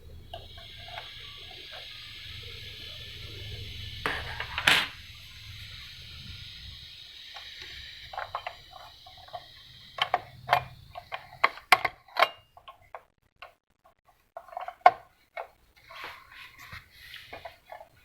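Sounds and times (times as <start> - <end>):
low hum: 0.0 - 11.4
plastic and metal parts clicking: 7.4 - 15.6.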